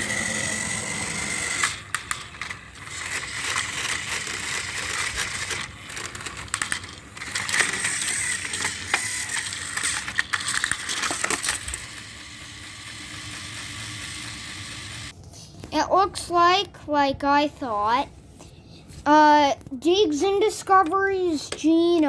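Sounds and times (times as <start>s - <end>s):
toy train motor whine: 0.0s - 15.1s
gear clatter: 1.0s - 12.1s.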